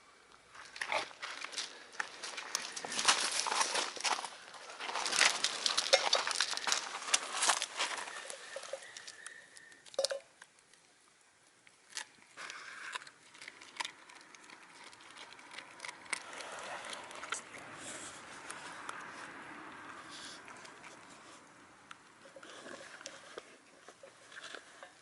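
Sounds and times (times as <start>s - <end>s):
dog crunching bones: 0.6s - 10.2s, 11.6s - 25.0s
dog chewing clicks: 12.9s - 17.5s.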